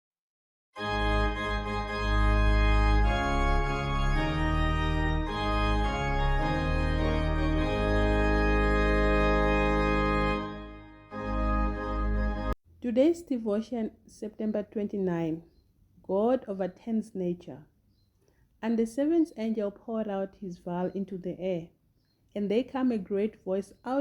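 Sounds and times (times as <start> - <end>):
organ chords: 0.8 - 12.6.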